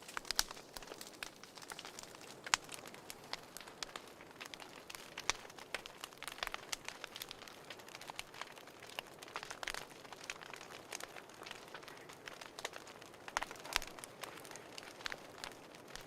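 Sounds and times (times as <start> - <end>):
fire crackling and snapping: 0.0 - 16.0.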